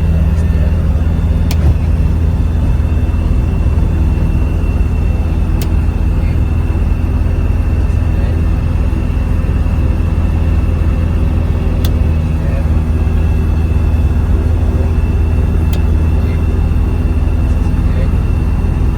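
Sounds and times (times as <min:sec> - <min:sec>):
aircraft engine and propeller: 0:00.0 - 0:18.9.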